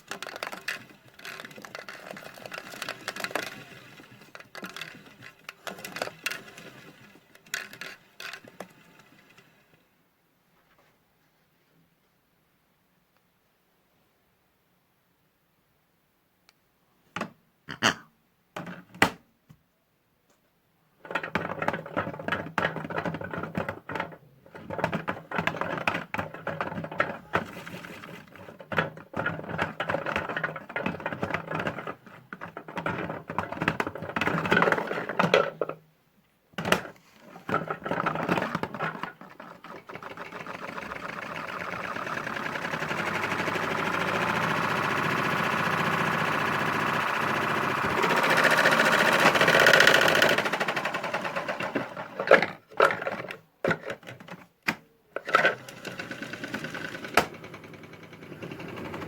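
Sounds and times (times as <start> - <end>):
clicking and clattering: 0.0 - 9.5
toy washing machine motor: 0.0 - 9.7, 21.0 - 35.7, 36.6 - 54.4, 55.2 - 59.0.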